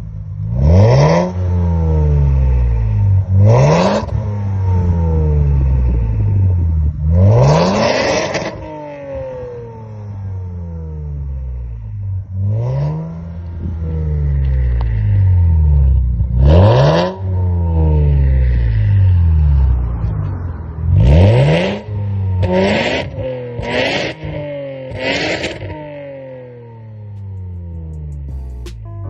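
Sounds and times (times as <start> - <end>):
car engine revving: 0.4 - 29.0.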